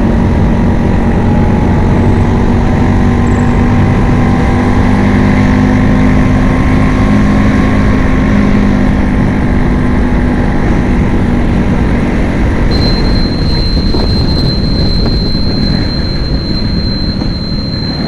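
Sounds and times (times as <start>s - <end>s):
scooter engine running: 12.7s - 18.0s.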